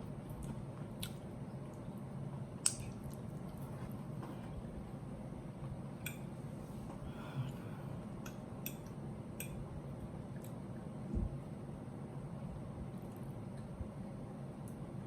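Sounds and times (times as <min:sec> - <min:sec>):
steady low hum: 0:00.0 - 0:15.0
soft chewing: 0:00.1 - 0:05.0, 0:05.6 - 0:11.1.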